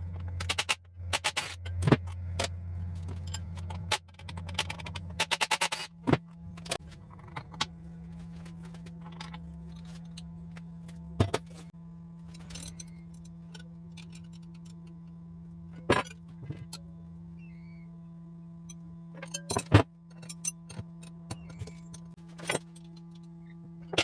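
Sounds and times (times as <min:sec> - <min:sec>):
steady low hum: 0:00.0 - 0:24.0
metal tools clinking: 0:12.3 - 0:15.0, 0:19.2 - 0:23.2.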